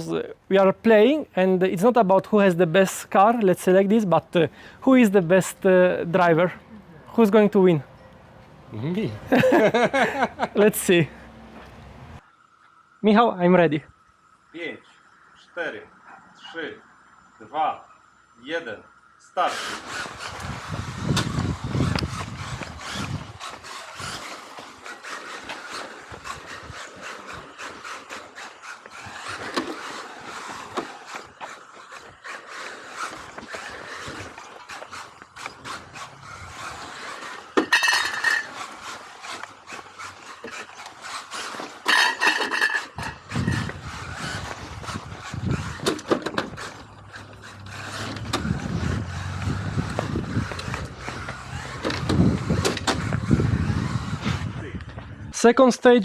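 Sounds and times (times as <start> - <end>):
toy car tyres scraping pavement: 0.0 - 12.2, 19.4 - 56.0
sharp clicks and knocks: 49.9 - 53.2.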